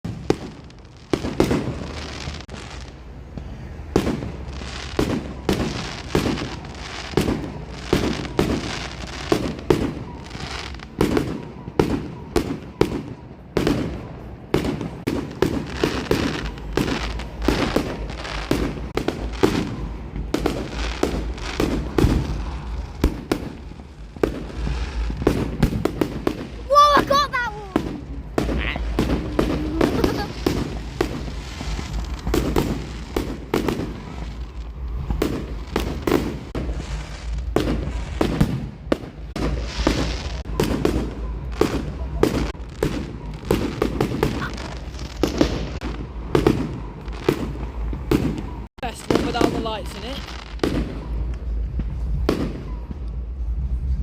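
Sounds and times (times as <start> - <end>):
fireworks bangs: 0.0 - 54.0
steady low rumble: 13.3 - 26.7, 27.6 - 48.8, 50.6 - 54.0.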